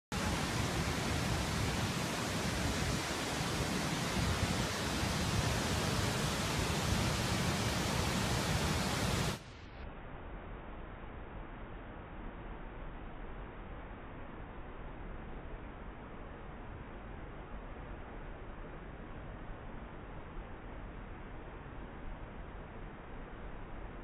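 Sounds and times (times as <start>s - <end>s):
waterfall rushing: 0.1s - 9.4s
quiet hiss: 0.1s - 24.0s.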